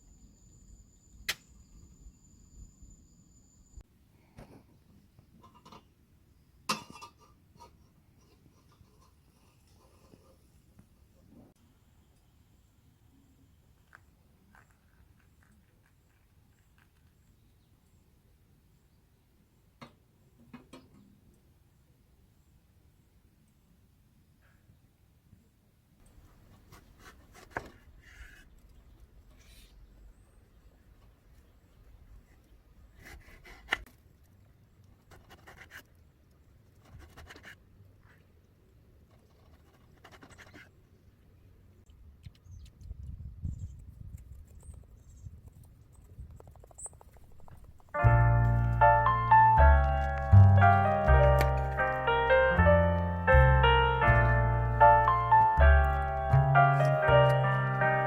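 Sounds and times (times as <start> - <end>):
faint scratching handling noises: 7.2 - 11.0, 26.1 - 30.0, 32.1 - 40.8.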